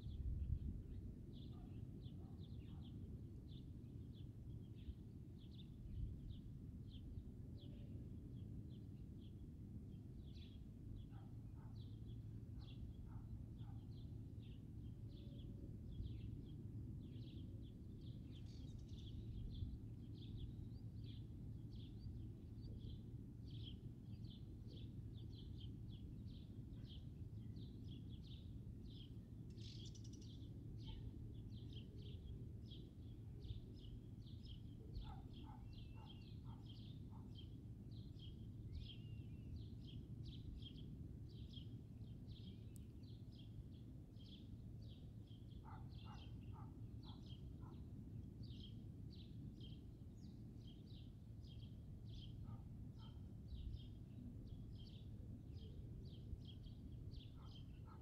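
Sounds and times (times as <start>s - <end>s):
faint low rumble: 0.0s - 11.1s
small birds chirping: 0.0s - 58.0s.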